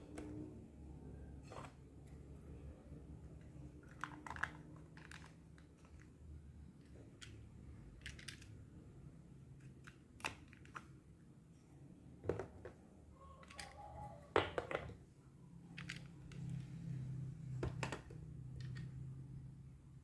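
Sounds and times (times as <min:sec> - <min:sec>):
plastic toy pieces clicking: 0:03.8 - 0:06.2, 0:06.8 - 0:08.6, 0:13.3 - 0:13.8, 0:15.7 - 0:16.6, 0:17.8 - 0:19.0.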